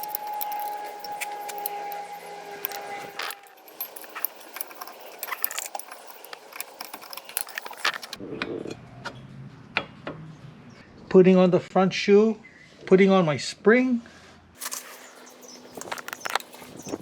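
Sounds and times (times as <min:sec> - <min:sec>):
metal springs clinking and rattling: 0:00.0 - 0:08.2, 0:14.6 - 0:17.0.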